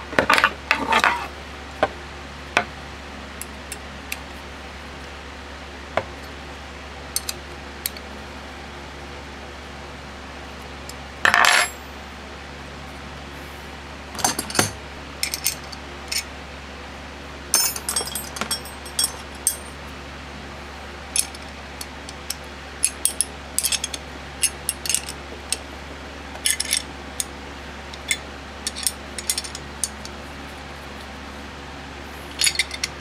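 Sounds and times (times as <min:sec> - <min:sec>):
steady low hum: 0:00.0 - 0:33.0
small metal parts clinking: 0:11.2 - 0:11.8, 0:17.6 - 0:19.7, 0:22.8 - 0:25.6, 0:26.4 - 0:26.9, 0:28.0 - 0:30.1, 0:32.3 - 0:33.0.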